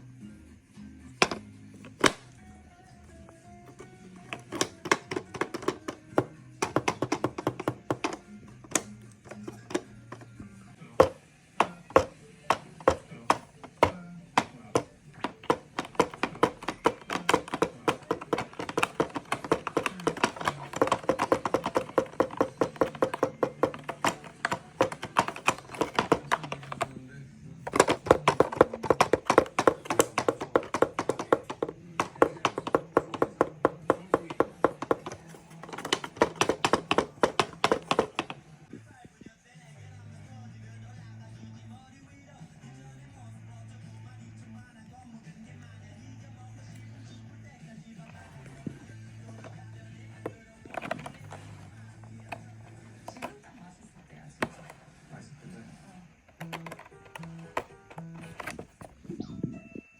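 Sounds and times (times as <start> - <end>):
plastic toy clicking and tapping: 1.2 - 2.3, 3.7 - 10.3, 11.0 - 27.0, 27.6 - 38.4, 50.2 - 53.4, 54.4 - 54.8, 56.3 - 58.9.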